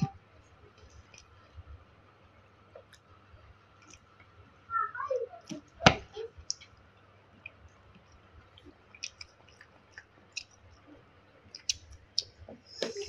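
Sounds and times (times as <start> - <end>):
faint chewing and mouth sounds: 0.4 - 1.8, 2.6 - 4.4, 6.3 - 13.0.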